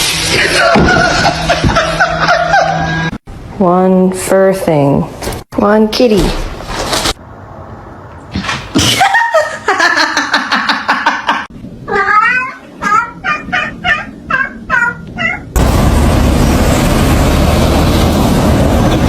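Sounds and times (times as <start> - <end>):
cat meowing: 11.9 - 15.6
steady loud noise: 15.5 - 19.0.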